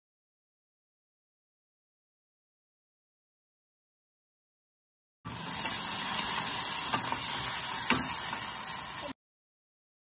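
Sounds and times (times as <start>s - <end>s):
onions sizzling in oil: 5.3s - 9.2s.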